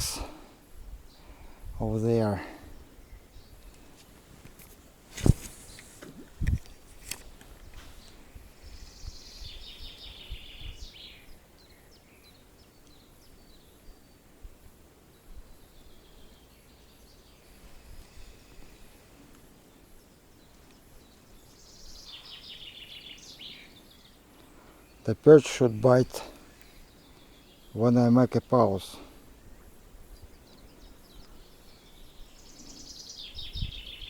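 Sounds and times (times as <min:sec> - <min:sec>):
small birds trilling: 0:00.0 - 0:14.4, 0:15.0 - 0:34.0
low wind rumble: 0:05.2 - 0:06.9.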